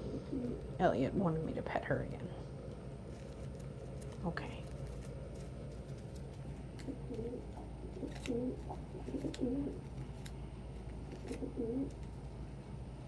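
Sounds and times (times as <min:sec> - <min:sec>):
pigeon cooing: 0:00.0 - 0:00.8, 0:06.8 - 0:09.9, 0:11.1 - 0:12.0
steady low hum: 0:00.0 - 0:13.0.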